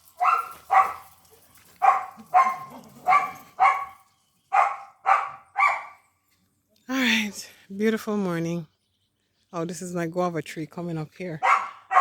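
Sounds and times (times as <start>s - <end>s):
dog barking: 0.2s - 1.1s, 1.8s - 6.0s, 11.4s - 12.0s.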